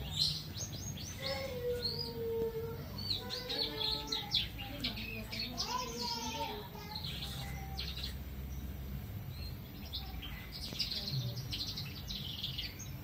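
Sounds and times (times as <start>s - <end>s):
small birds chirping in trills: 0.0s - 13.0s.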